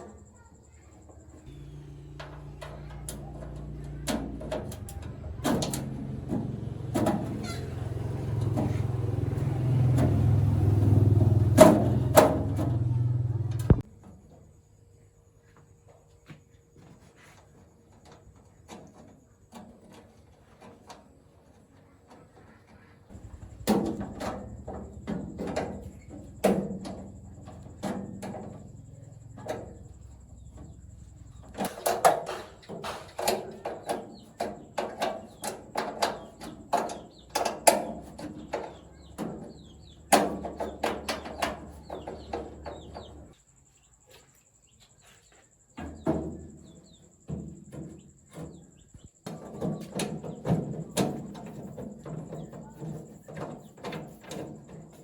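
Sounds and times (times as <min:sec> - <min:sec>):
low hum: 0:01.5 - 0:13.8.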